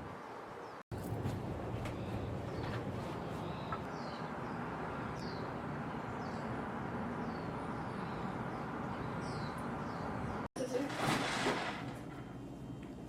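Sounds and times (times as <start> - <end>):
bird chirping: 1.8 - 10.5.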